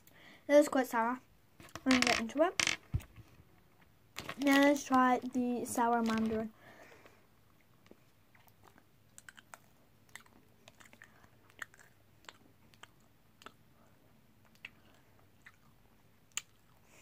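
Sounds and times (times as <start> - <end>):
person chewing candy: 7.9 - 13.7, 14.4 - 16.9.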